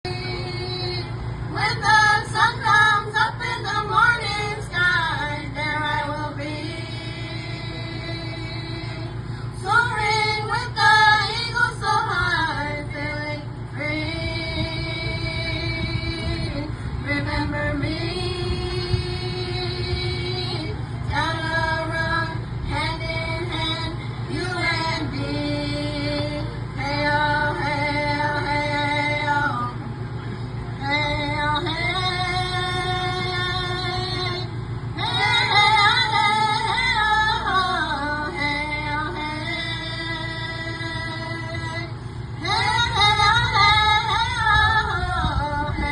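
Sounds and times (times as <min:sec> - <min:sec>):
women singing together: 0:00.0 - 0:29.8, 0:30.8 - 0:45.9.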